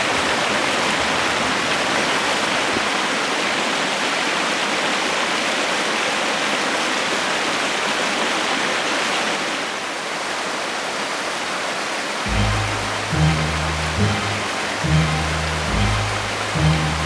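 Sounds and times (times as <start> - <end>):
low music notes: 12.3 - 17.0
waterfall rushing: 12.3 - 17.0.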